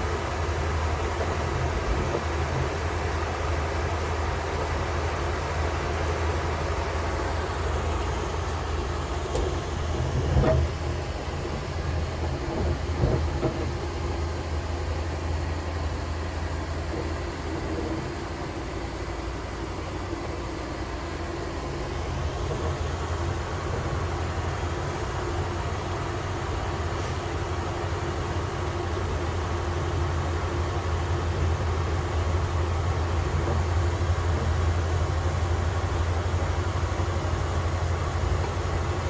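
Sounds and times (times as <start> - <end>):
train rumbling on rails: 0.0 - 39.0.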